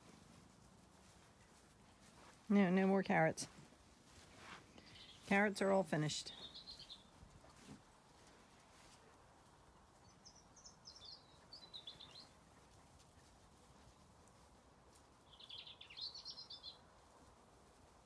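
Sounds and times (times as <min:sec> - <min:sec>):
faint background noise: 0:00.0 - 0:18.0
songbird singing: 0:04.7 - 0:07.3, 0:09.8 - 0:12.7, 0:15.2 - 0:17.1.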